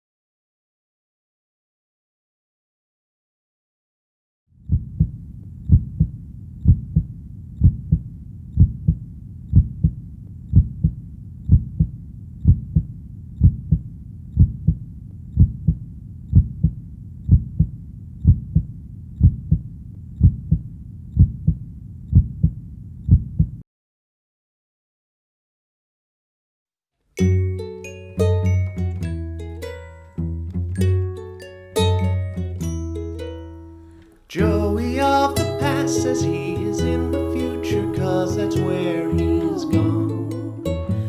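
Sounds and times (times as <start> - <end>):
low steady rumble: 32.0 - 41.0.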